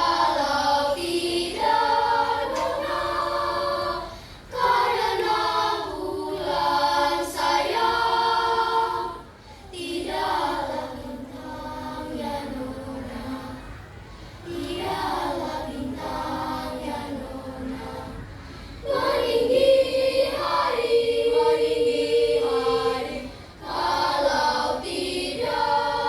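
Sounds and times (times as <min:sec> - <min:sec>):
children's choir singing: 0:00.0 - 0:26.0
singers breathing: 0:04.0 - 0:04.6, 0:09.2 - 0:09.8, 0:13.9 - 0:14.5, 0:18.2 - 0:18.9, 0:23.2 - 0:23.6.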